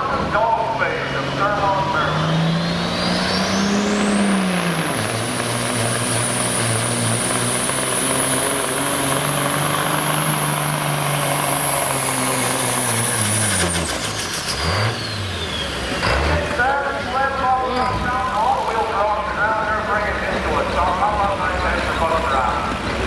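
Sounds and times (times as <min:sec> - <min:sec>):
diesel truck engine under load: 0:00.0 - 0:23.0
turbocharger whistle: 0:01.0 - 0:16.2.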